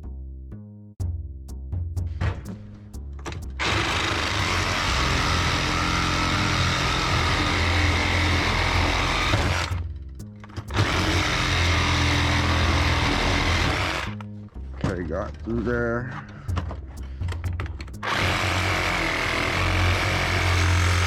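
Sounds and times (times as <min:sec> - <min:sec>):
reciprocating saw cutting metal: 0:03.6 - 0:09.8, 0:10.7 - 0:14.2, 0:18.0 - 0:21.0.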